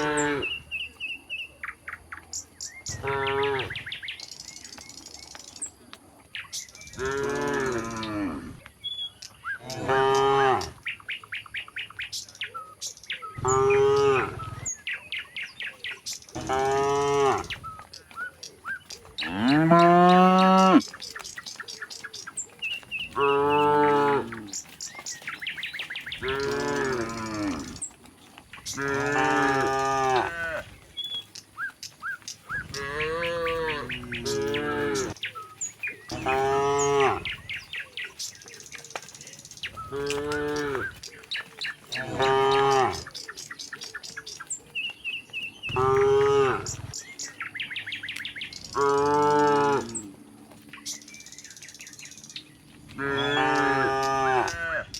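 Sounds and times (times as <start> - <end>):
cattle mooing: 0.0 - 0.5, 16.4 - 17.6, 19.2 - 21.0, 22.8 - 27.9, 28.6 - 30.8, 32.6 - 35.2, 36.1 - 37.4, 39.8 - 41.0, 41.9 - 43.1, 45.7 - 46.8, 48.7 - 50.1, 53.0 - 54.8
small birds chirping: 0.0 - 54.9.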